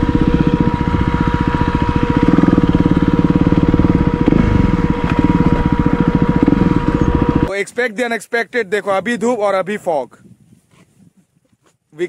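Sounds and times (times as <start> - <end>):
motorcycle engine chugging: 0.0 - 7.5
steady whine: 0.0 - 7.5.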